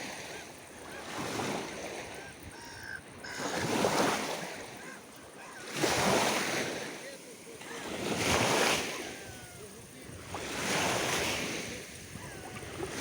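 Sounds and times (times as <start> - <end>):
sea waves washing ashore: 0.0 - 13.0
faint gull calls: 0.1 - 6.1, 8.8 - 10.0, 12.0 - 13.0.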